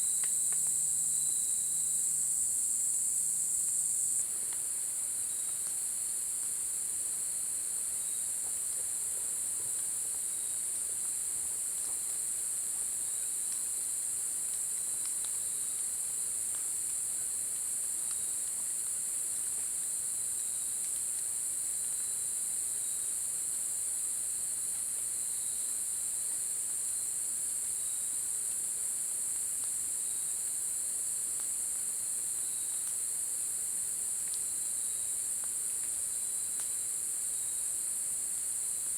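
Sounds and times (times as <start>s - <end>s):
faint ticks: 0.0s - 1.4s, 13.2s - 20.0s, 20.8s - 22.1s, 34.2s - 36.8s
insects trilling: 0.0s - 4.2s
lower pulsing insect call: 0.0s - 8.8s, 9.8s - 38.9s.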